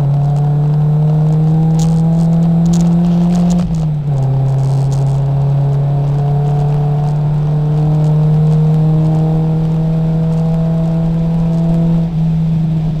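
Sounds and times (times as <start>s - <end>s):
gear change: 0.0s - 13.0s
race car engine accelerating: 0.0s - 13.0s.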